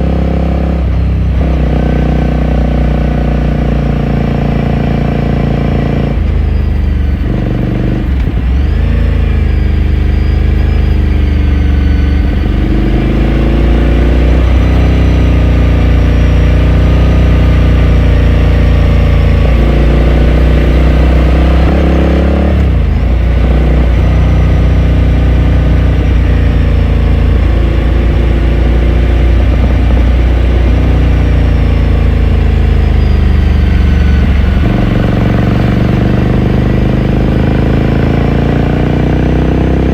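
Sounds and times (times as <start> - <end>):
motorcycle exhaust while riding: 0.0 - 39.9.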